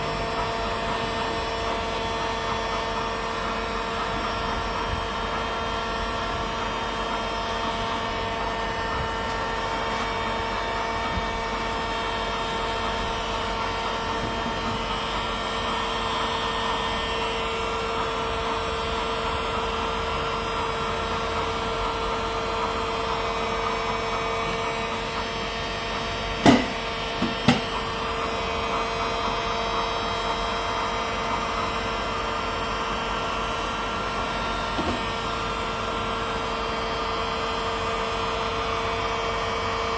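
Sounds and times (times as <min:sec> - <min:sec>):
hot-air welding gun blower whine: 0:00.0 - 0:39.9
sharp knocks: 0:26.4 - 0:27.7.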